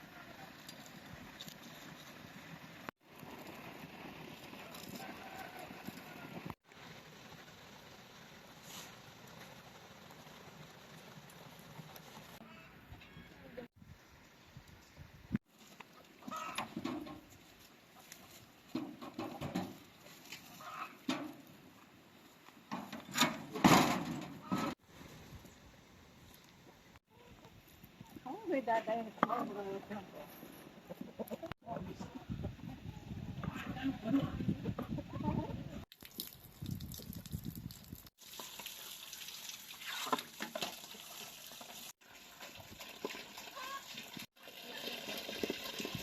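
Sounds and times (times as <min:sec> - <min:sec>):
chickens clucking: 0:16.2 - 0:16.8, 0:20.6 - 0:21.1, 0:30.7 - 0:33.7
water running and splashing: 0:35.9 - 0:46.0.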